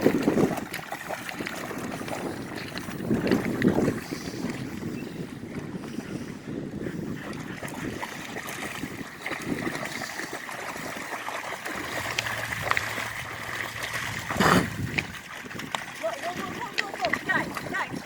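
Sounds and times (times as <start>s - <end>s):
river water trickling: 0.0s - 5.6s, 7.4s - 18.0s
rush of noise: 11.7s - 15.0s.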